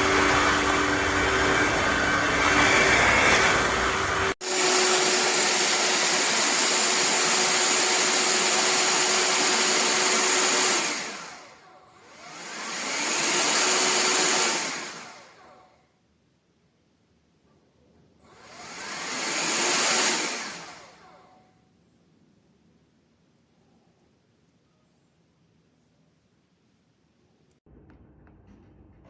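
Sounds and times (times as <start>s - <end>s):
vacuum motor whining: 0.0s - 15.7s, 18.3s - 21.4s.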